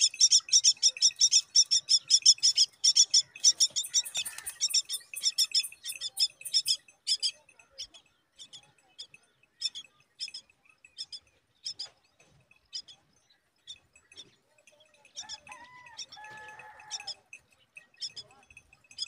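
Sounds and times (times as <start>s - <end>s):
nestlings chirping: 0.0s - 12.0s, 18.0s - 18.3s.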